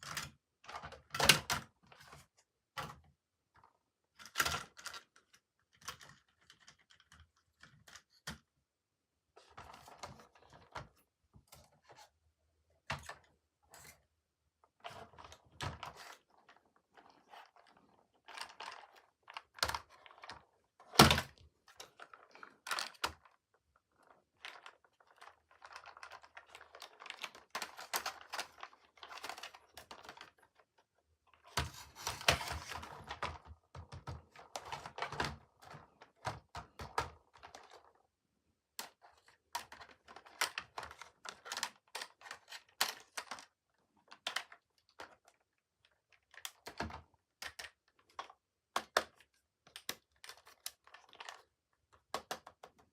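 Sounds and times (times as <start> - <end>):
plastic toy clicks and knocks: 46.3 - 52.8.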